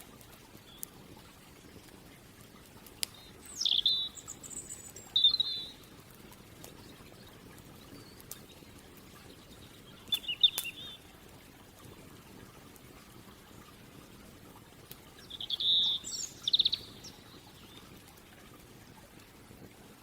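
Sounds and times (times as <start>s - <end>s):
campfire crackling pops: 0.0s - 20.0s
songbird chirping: 3.0s - 5.9s, 7.9s - 11.1s, 15.2s - 17.9s.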